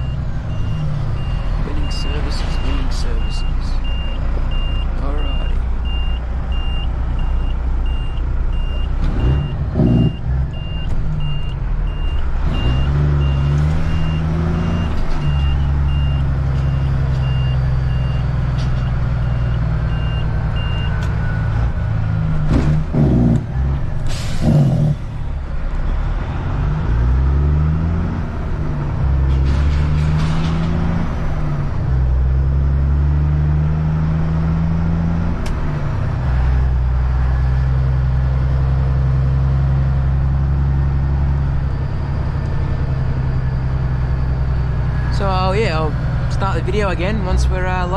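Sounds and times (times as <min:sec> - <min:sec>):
reversing beeper: 0:00.0 - 0:21.4
diesel engines revving: 0:00.0 - 0:47.9.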